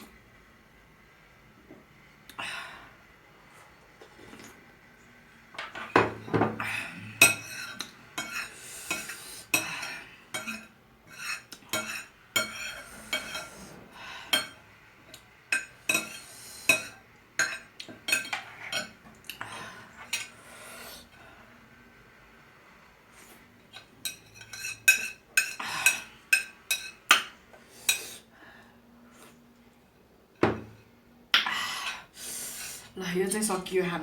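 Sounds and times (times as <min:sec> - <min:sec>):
cutlery scraping a plate: 0:07.2 - 0:14.6, 0:15.5 - 0:19.0, 0:23.8 - 0:27.3.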